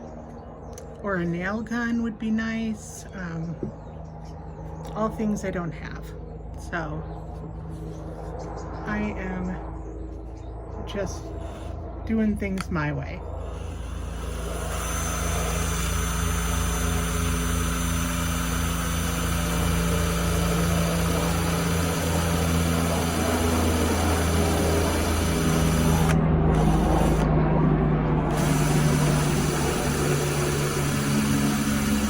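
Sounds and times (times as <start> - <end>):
cordless drill driving screws: 11.4 - 11.8, 13.4 - 27.3, 28.3 - 32.0.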